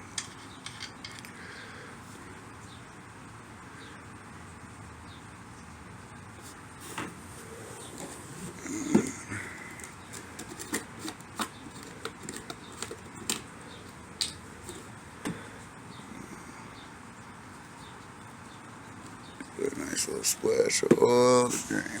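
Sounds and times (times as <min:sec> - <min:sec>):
hands handling vacuum pump parts: 0:07.8 - 0:15.8.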